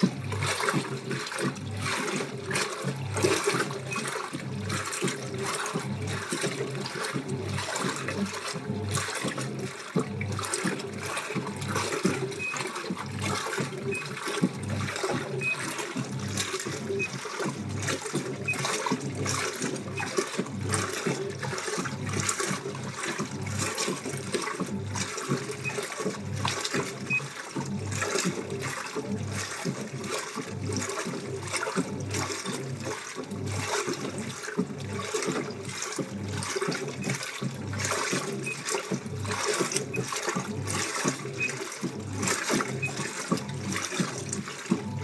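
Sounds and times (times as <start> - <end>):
water sloshing in washing machine: 0.0 - 45.0.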